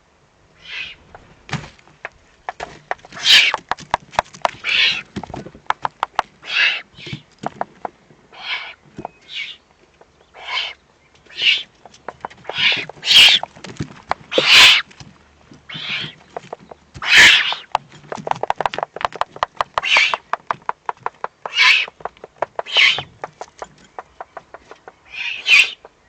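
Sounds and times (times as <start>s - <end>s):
owl chicks hissing begging calls: 0.6s - 1.2s, 4.6s - 5.1s, 6.4s - 7.2s, 8.3s - 9.6s, 10.3s - 13.5s, 14.3s - 14.9s, 15.7s - 16.3s, 17.0s - 17.7s, 19.8s - 20.2s, 21.5s - 22.0s, 22.6s - 23.2s, 24.3s - 25.9s
sharp clicks and knocks: 1.5s - 6.3s, 11.8s - 16.9s, 17.6s - 25.0s.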